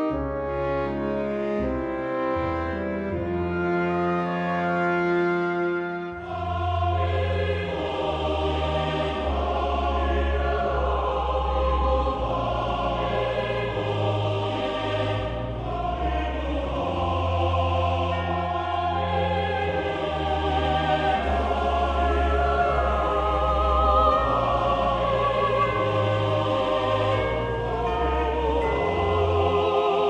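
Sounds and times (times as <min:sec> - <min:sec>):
synthesized choir and strings music: 0:00.0 - 0:30.0.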